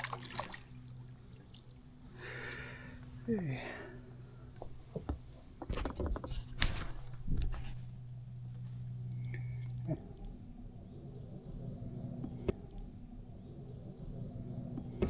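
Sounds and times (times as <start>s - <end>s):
insects buzzing: 0.0s - 15.0s
low steady hum: 0.0s - 15.0s
knocks and rattles: 4.6s - 7.8s.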